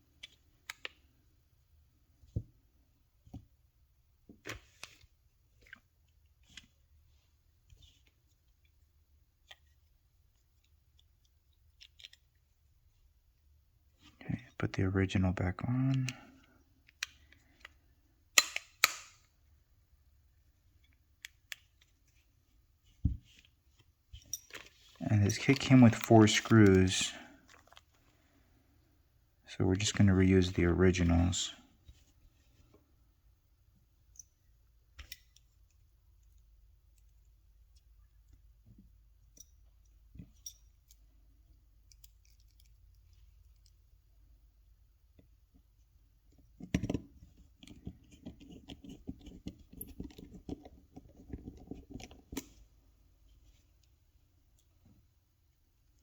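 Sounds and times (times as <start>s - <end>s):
plastic parts snapping together: 18.4s - 19.2s
small clicks and taps of screws: 35.0s - 43.9s.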